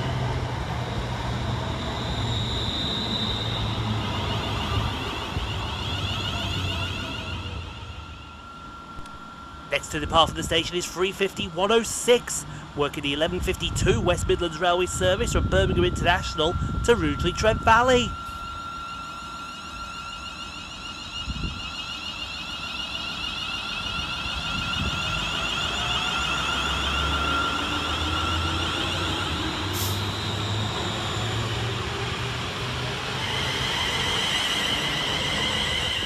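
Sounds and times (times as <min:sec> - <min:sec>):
electric train motors whining: 0:00.0 - 0:36.0.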